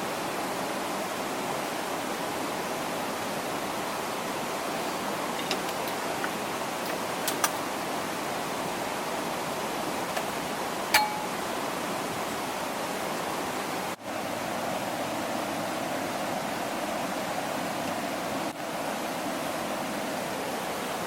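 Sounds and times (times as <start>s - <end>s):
flowing water rushing: 0.0s - 21.0s
metallic clink: 10.9s - 11.4s.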